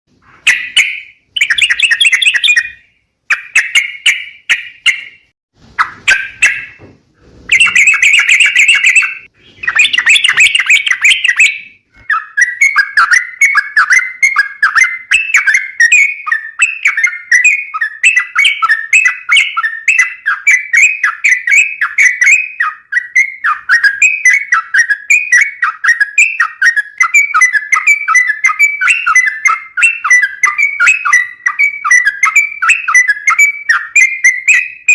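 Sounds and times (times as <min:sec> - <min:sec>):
bulbul singing: 0:00.2 - 0:06.9, 0:07.5 - 0:34.9.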